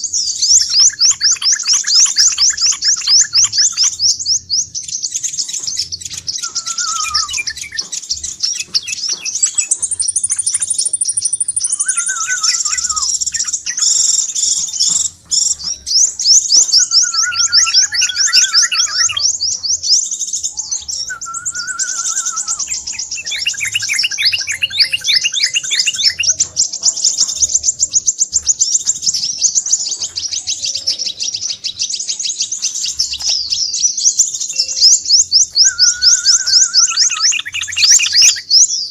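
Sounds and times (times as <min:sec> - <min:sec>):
bird trilling chatter: 0:00.0 - 0:38.9
bird warbled phrases: 0:00.2 - 0:38.6.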